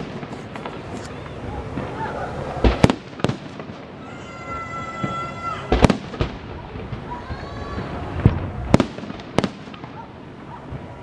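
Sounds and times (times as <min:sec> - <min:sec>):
firework shells bursting: 0:00.0 - 0:02.0
crowd and street background: 0:00.0 - 0:11.0.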